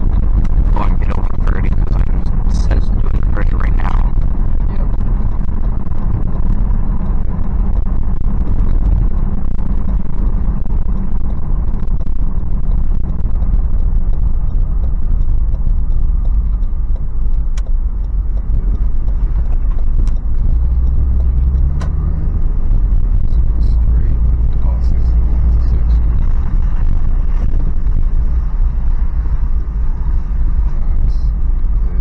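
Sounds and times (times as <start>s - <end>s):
engine rumble: 0.0s - 32.0s
road noise: 0.0s - 32.0s.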